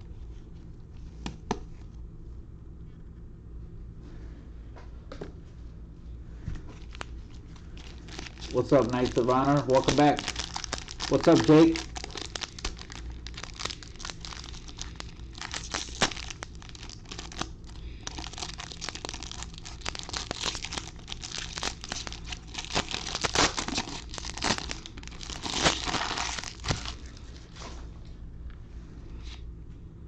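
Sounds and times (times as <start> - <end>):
wrapper tearing and crinkling: 6.8 - 27.3.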